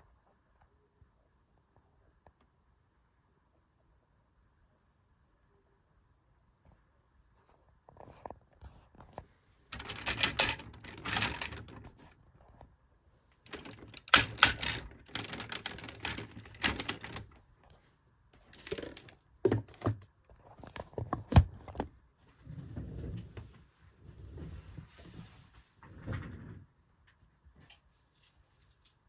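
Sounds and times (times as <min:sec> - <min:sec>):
plastic toy parts clicking: 0:09.7 - 0:12.1, 0:13.5 - 0:17.4, 0:18.4 - 0:20.0.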